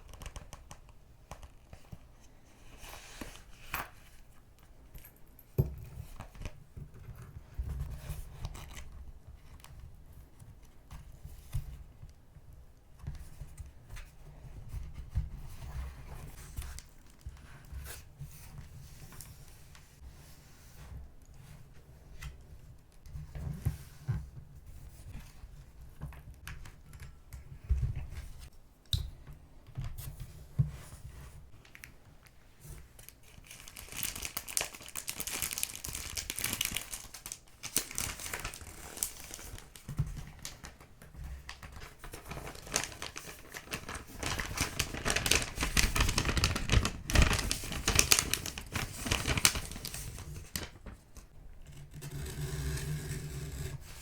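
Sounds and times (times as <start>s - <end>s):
paper crinkling and rustling: 32.7s - 51.4s.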